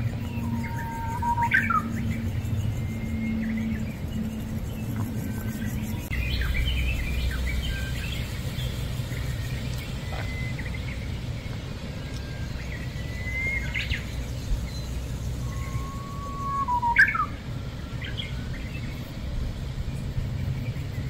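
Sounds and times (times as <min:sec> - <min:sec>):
small birds chirping: 0:00.0 - 0:21.0
steady low rumble: 0:00.0 - 0:21.0
thin level whistles: 0:00.2 - 0:02.1, 0:09.2 - 0:17.4.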